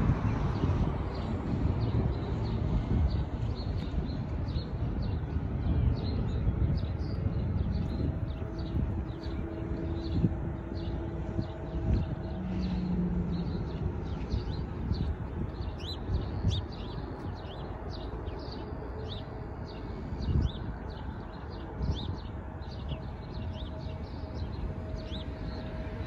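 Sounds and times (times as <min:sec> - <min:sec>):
steady low rumble: 0:00.0 - 0:26.0
small birds chirping: 0:01.8 - 0:25.8.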